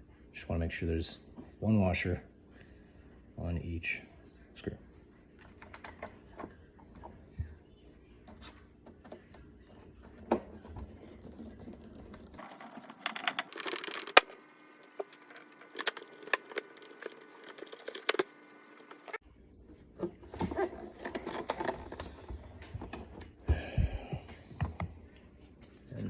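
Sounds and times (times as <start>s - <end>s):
plastic parts and screws rattling: 10.2s - 19.2s, 20.4s - 23.2s.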